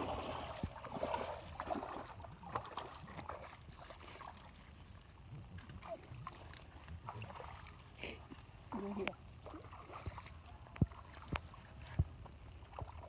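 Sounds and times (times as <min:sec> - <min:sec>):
water splashing in river: 0:00.0 - 0:04.6, 0:08.7 - 0:11.8.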